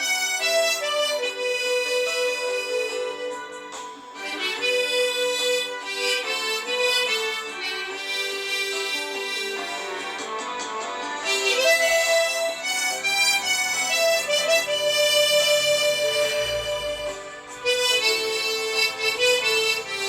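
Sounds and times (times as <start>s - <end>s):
harmonica playing slow melody: 0.0s - 20.0s.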